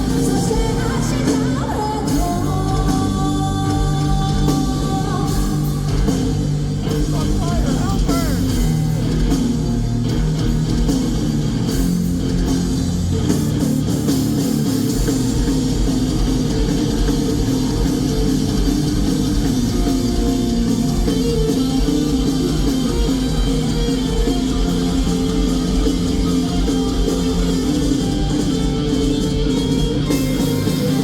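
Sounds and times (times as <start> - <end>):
distorted electric guitar: 0.0 - 31.0
drum kit playing: 0.0 - 31.0.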